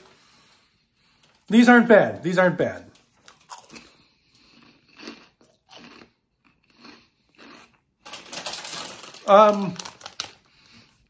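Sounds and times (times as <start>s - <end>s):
crunchy chewing: 3.0s - 8.9s
plastic snack bag crinkling: 6.9s - 11.0s.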